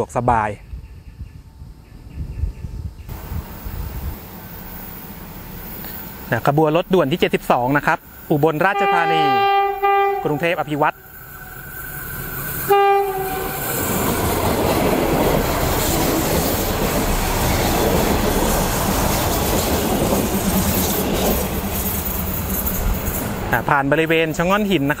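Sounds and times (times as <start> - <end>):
diesel railcar passing: 3.1 - 25.0
train horn blast: 8.6 - 11.6, 12.6 - 14.0.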